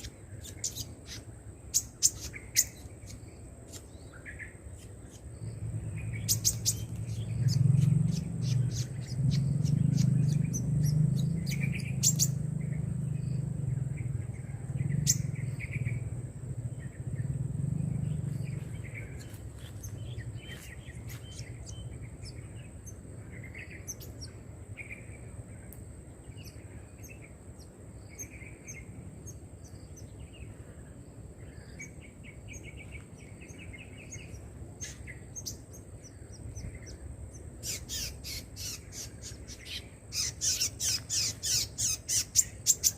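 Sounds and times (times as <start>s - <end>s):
small birds chirping: 0.0s - 42.9s
low rumble: 5.3s - 25.6s.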